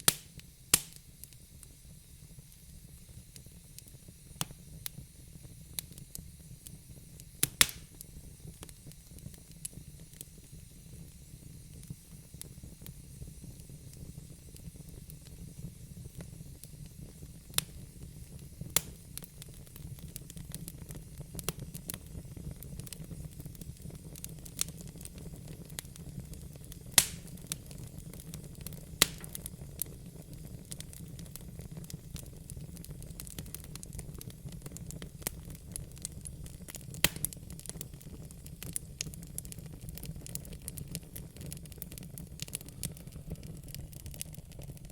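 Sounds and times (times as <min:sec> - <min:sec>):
low rumble and hiss of flames: 0:00.0 - 0:44.9
logs crackling and popping: 0:00.1 - 0:01.4, 0:07.2 - 0:10.3, 0:16.2 - 0:44.9.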